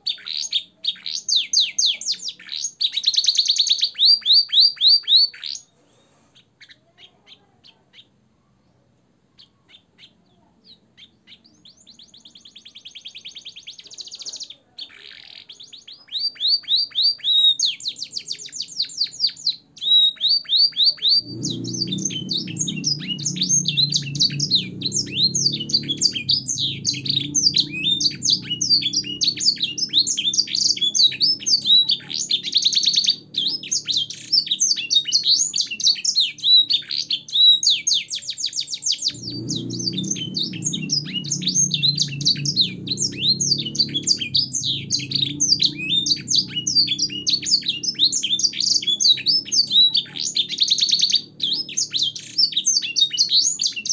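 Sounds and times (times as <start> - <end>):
canary singing trills: 0.0 - 53.9
low rumble: 21.2 - 33.9, 39.0 - 50.4.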